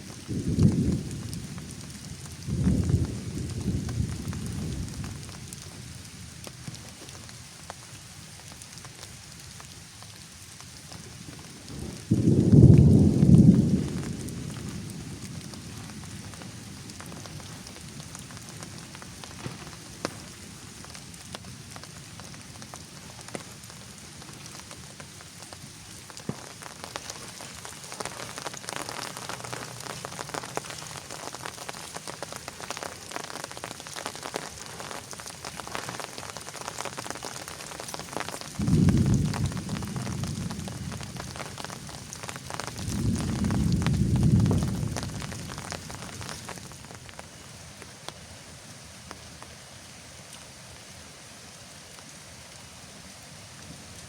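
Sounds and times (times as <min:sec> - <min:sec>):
thunder rumbling: 0:00.0 - 0:06.0, 0:11.0 - 0:21.7, 0:26.1 - 0:47.0
rain falling: 0:00.0 - 0:54.0
raindrops striking close by: 0:00.0 - 0:54.0.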